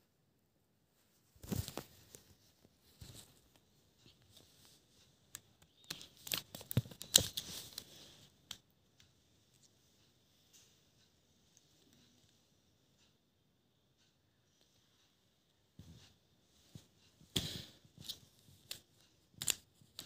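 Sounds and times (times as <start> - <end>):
plastic puzzle clicking and rattling: 18.0 - 20.0.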